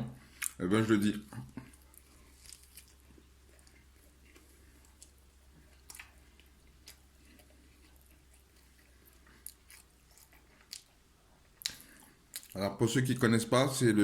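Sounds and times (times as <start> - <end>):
faint chewing: 0.2 - 13.3
mouth clicks: 11.6 - 12.6.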